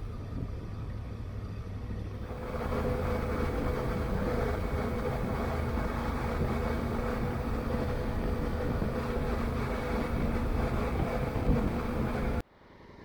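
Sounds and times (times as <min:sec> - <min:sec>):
wind noise: 0:00.0 - 0:12.4
motorcycle engine running: 0:02.2 - 0:12.4.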